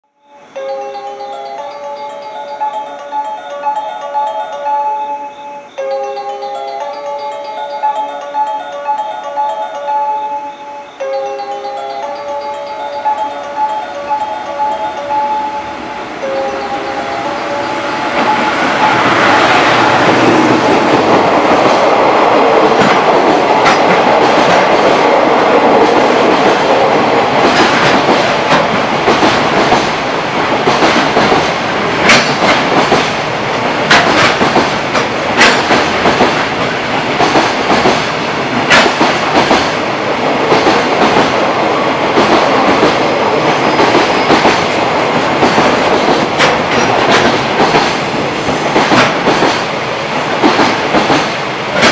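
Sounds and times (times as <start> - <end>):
train wheels clattering on rails: 18.1 - 51.9.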